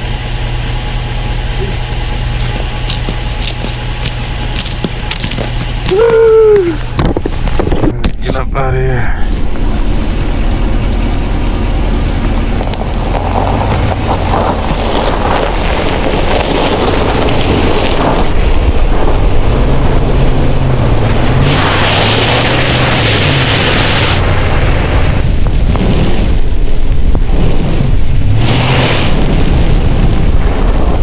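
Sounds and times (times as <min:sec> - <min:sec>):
pickup engine revving: 0:00.0 - 0:07.9, 0:09.3 - 0:31.0
wind noise on microphone: 0:01.6 - 0:08.4, 0:09.3 - 0:31.0
loud hiss: 0:20.4 - 0:26.5.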